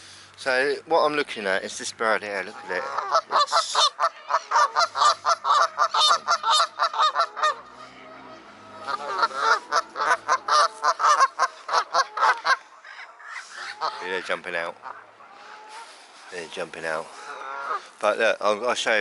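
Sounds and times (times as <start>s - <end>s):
geese honking: 2.3s - 18.0s.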